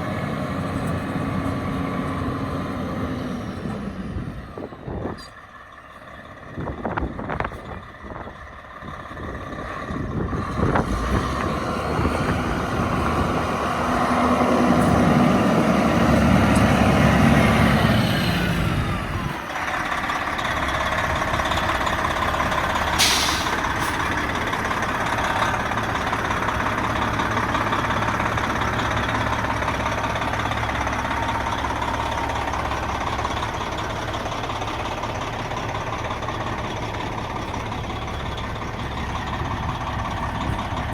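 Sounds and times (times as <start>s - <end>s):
diesel truck engine running: 0.0s - 40.9s
sharp air hiss: 23.0s - 24.0s.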